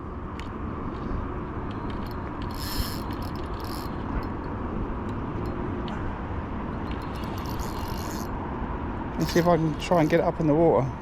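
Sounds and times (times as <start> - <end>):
reel rasping bursts: 1.8 - 4.4, 6.9 - 8.3, 9.2 - 10.3
fishing reel whirring: 1.8 - 4.5, 6.9 - 8.4, 9.2 - 10.2.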